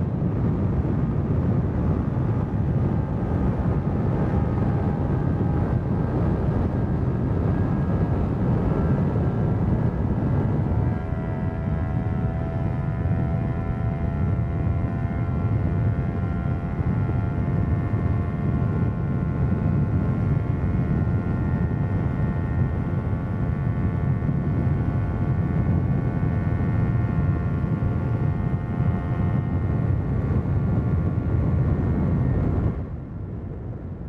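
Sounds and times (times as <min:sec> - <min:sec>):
motorcycle engine cruising: 0:00.0 - 0:34.0.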